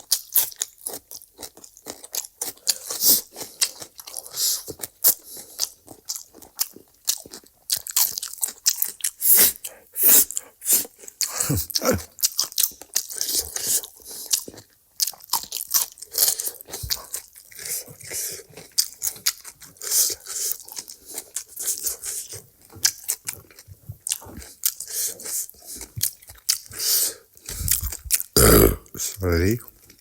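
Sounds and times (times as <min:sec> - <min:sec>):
person crunching and chewing: 0:00.0 - 0:30.0.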